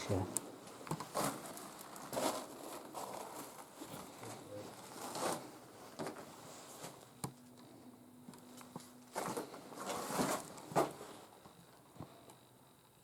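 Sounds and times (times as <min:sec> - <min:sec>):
low steady buzz: 0:05.6 - 0:13.0.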